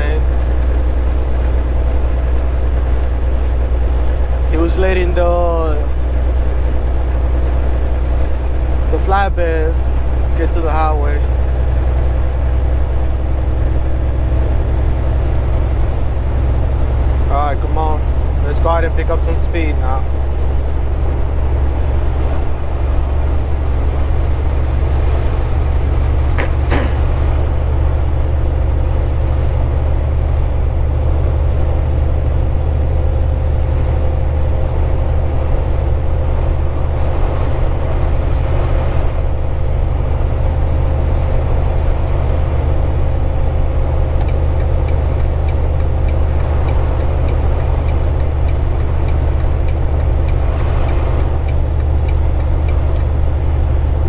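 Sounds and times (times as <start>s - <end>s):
road noise: 0.0s - 54.0s
truck diesel engine drone: 0.0s - 54.0s.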